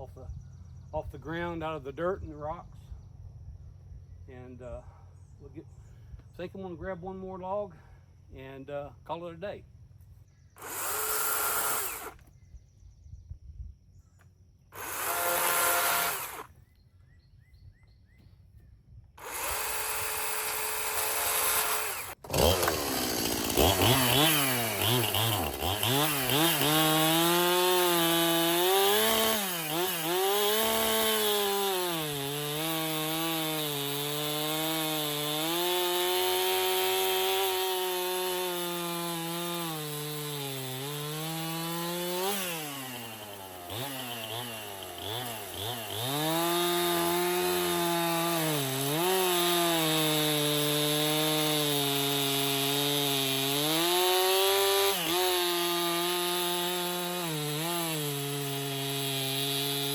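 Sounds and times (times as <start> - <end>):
chainsaw revving: 10.6 - 12.2, 14.8 - 16.5, 19.2 - 59.9
chainsaw cutting log: 10.6 - 12.3, 14.7 - 16.5, 19.2 - 59.9.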